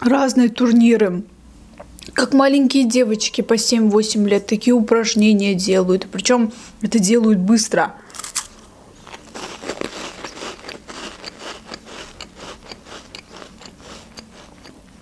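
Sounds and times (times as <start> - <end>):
bite into crisp cracker: 8.1 - 14.8
crunchy chewing: 8.1 - 15.0.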